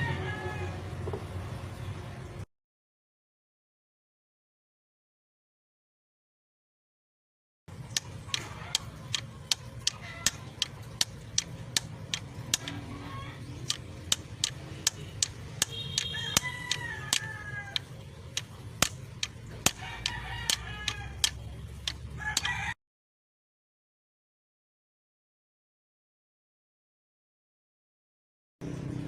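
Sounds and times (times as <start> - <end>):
rooster crowing: 0.0 - 0.9, 15.7 - 17.9, 19.7 - 21.4, 22.2 - 22.8
rapid sharp tool taps: 7.9 - 12.8, 13.7 - 22.5
chickens clucking: 8.0 - 22.5.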